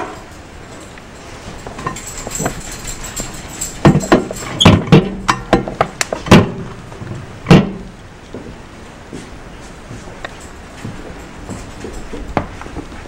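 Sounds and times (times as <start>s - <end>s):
knocks and clunks in a kitchen: 3.8s - 8.6s.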